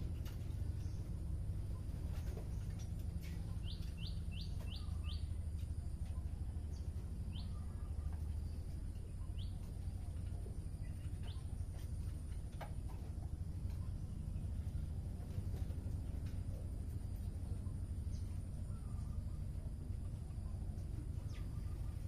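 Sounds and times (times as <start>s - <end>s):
low background hum: 0.0s - 22.0s
bird chirping: 0.6s - 12.4s.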